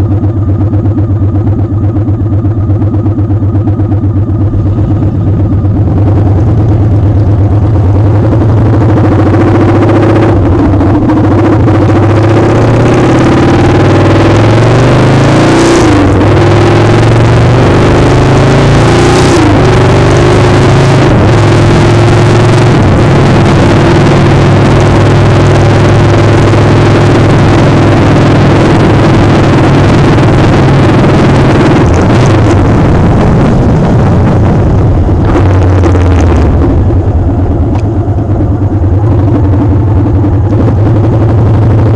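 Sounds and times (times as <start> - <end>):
motorcycle engine running: 0.0 - 41.9
wind noise on microphone: 19.4 - 41.9.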